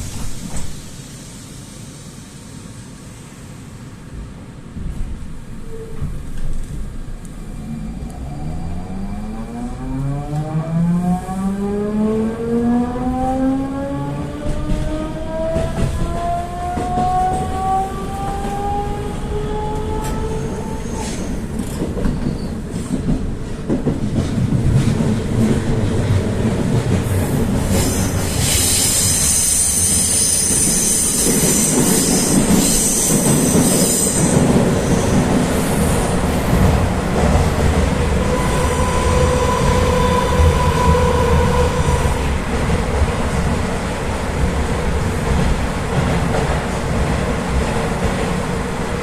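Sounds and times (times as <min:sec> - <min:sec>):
wheels rumbling on rail: 0:02.8 - 0:49.0
high wheel squeal: 0:27.8 - 0:35.2.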